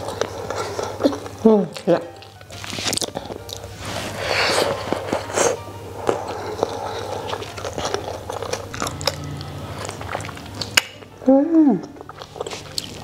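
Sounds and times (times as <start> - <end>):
person chewing crunchy food: 0.0 - 13.0.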